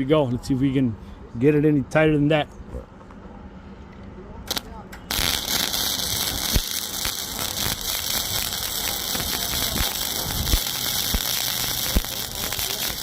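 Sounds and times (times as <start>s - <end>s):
sharp welding pops: 4.5s - 13.0s
welding arc crackling: 4.5s - 13.0s.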